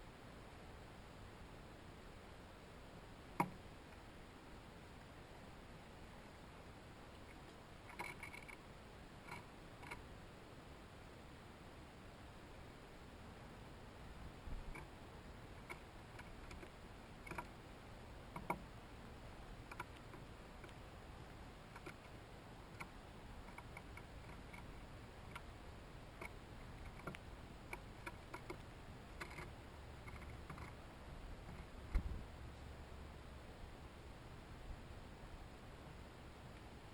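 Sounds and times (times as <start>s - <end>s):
faint background hiss: 0.0s - 36.9s
sharp ticks and taps at feeders: 3.3s - 4.0s, 7.1s - 10.1s, 14.5s - 18.8s, 19.4s - 30.8s, 31.4s - 32.7s.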